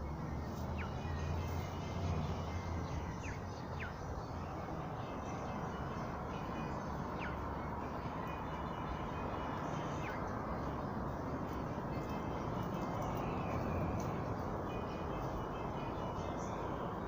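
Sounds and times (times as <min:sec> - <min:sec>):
bird chirps: 0:00.0 - 0:10.8.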